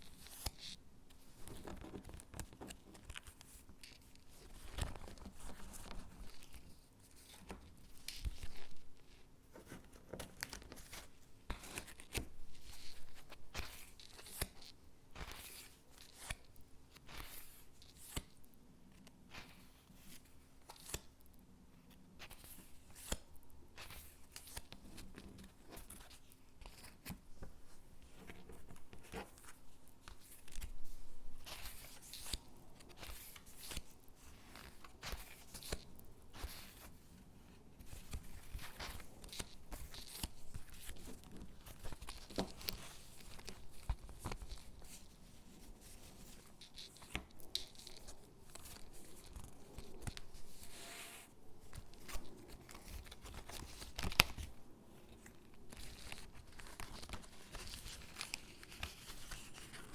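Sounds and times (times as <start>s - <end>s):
paper rustling: 55.1s - 59.9s.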